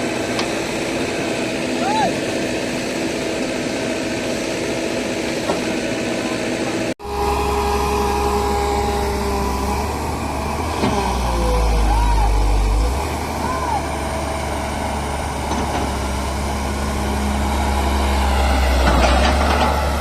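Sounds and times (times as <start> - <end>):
construction machinery diesel engines: 0.0 - 20.0
deep engine rumble: 6.4 - 20.0.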